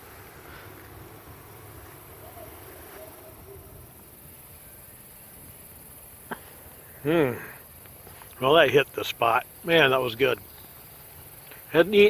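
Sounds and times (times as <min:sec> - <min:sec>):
steady low rumble: 0:00.0 - 0:06.8.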